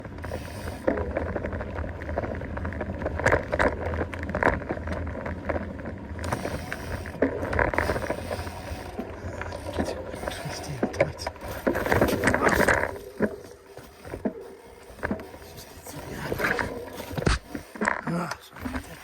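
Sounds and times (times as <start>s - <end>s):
bike clicks and rattles: 0.0s - 19.0s
bike tyres on dirt trail: 0.0s - 19.0s.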